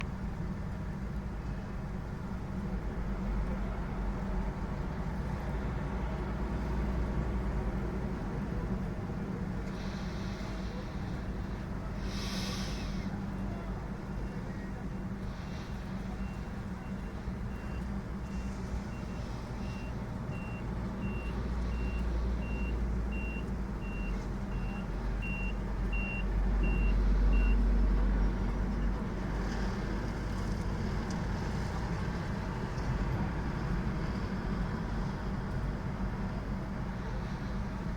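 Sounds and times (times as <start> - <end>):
diesel truck engine running: 0.0 - 37.9
reversing alarm beeping: 16.1 - 27.6.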